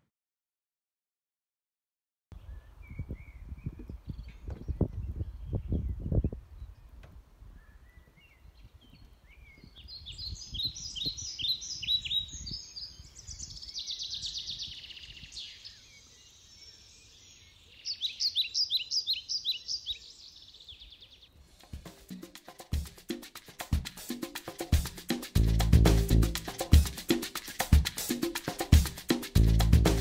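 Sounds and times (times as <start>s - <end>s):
songbird singing: 2.3s - 21.4s.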